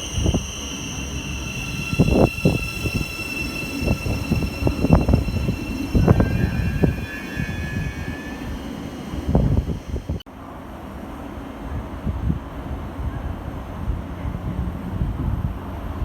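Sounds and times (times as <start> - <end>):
high whining tones: 0.0 - 10.2
train rumbling: 0.0 - 16.0.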